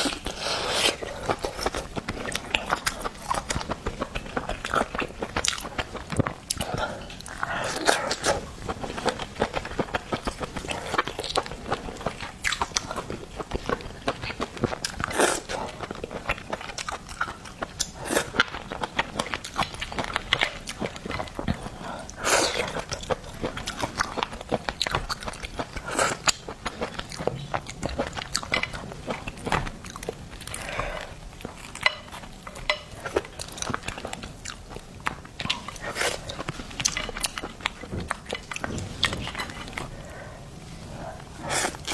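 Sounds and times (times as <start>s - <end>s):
wet chewing and biting: 0.0s - 40.0s.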